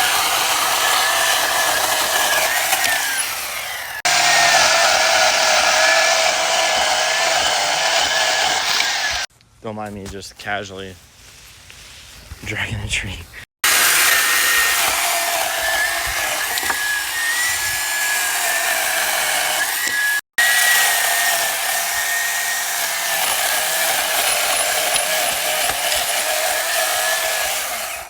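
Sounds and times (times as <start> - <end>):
power saw cutting wood: 0.0 - 9.3, 13.6 - 28.0.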